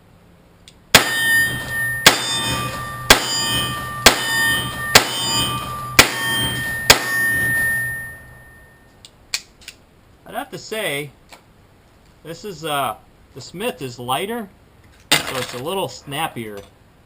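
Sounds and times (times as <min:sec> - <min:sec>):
revolver gunshots: 0:00.9 - 0:07.7
ringing metal clang: 0:00.9 - 0:09.0.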